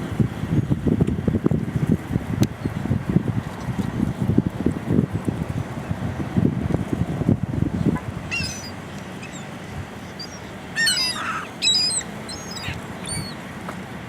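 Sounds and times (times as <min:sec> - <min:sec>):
birds calling: 0:07.8 - 0:13.8.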